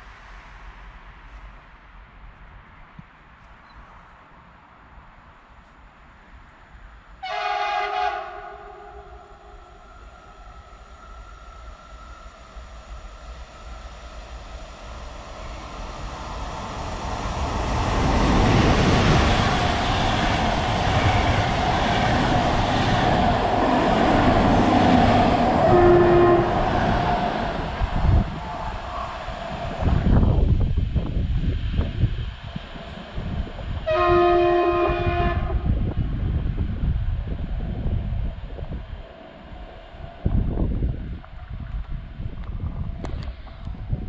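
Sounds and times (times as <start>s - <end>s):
train passing at speed: 0.0s - 44.0s
locomotive horn: 7.2s - 9.3s, 25.6s - 26.6s, 33.9s - 35.6s.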